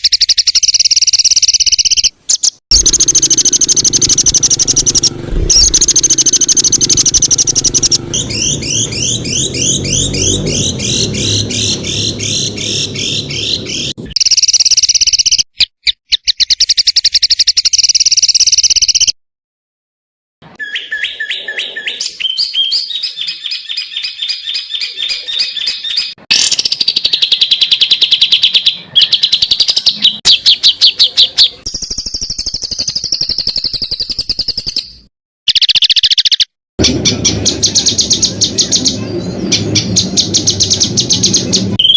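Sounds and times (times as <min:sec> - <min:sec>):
songbird trills and chattering: 0:00.0 - 0:19.1, 0:20.6 - 0:36.5
low rumble: 0:02.8 - 0:14.0.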